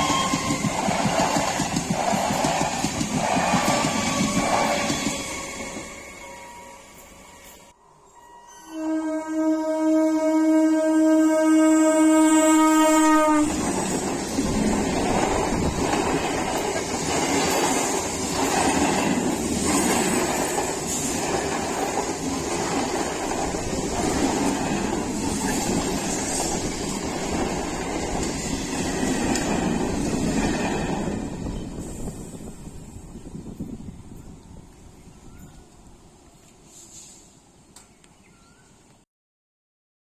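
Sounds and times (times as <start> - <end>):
train wheels rumbling on rail: 0.0 - 7.7, 12.8 - 38.0
train horn blast: 5.3 - 14.0.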